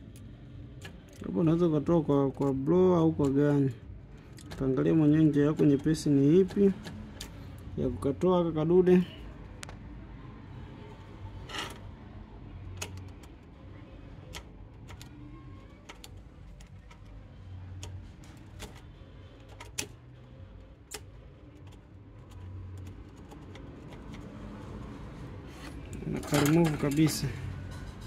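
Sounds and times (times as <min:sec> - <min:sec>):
hand tools clicking and tapping: 0:20.9 - 0:24.9.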